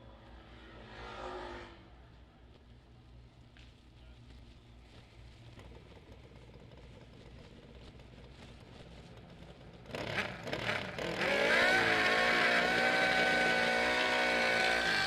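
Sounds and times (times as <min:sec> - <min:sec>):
motorcycle engine revving: 0:00.1 - 0:02.0, 0:05.3 - 0:15.0.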